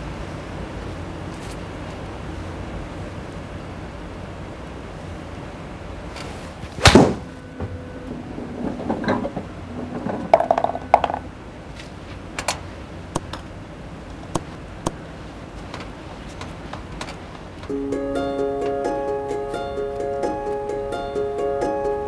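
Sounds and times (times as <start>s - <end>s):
light clattering: 8.1s - 11.3s.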